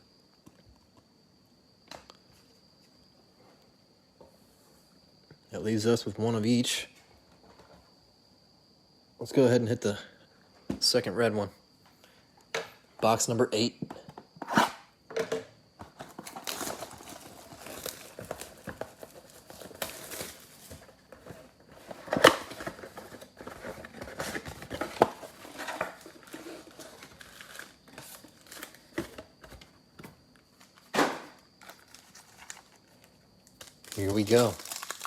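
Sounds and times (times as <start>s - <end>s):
plastic and cardboard tearing: 16.0s - 20.9s, 33.5s - 35.0s.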